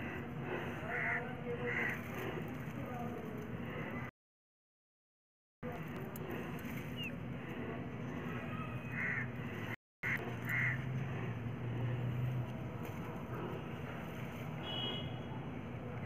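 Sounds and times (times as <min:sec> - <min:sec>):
outdoor background noise: 0:00.0 - 0:04.1, 0:05.6 - 0:16.0
bird cawing: 0:00.6 - 0:02.0, 0:08.6 - 0:09.4, 0:10.0 - 0:10.9.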